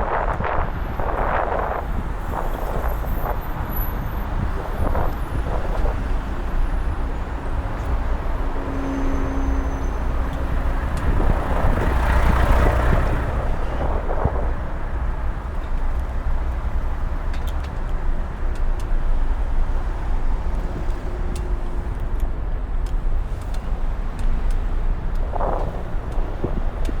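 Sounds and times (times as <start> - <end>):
traffic rumble: 0.0 - 27.0
vehicle passing close: 8.0 - 15.4.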